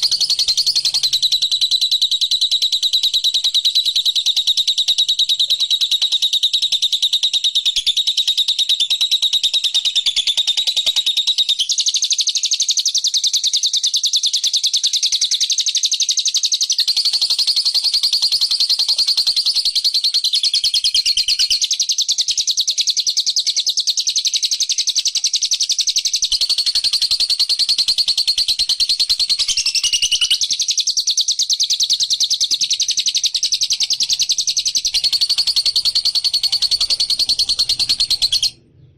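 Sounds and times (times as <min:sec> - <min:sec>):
songbird high chattering trill: 0:00.0 - 0:02.0, 0:16.6 - 0:38.6.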